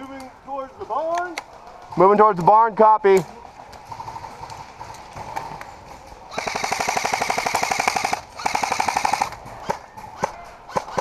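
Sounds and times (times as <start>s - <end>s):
airsoft gun firing bursts: 6.3s - 11.0s.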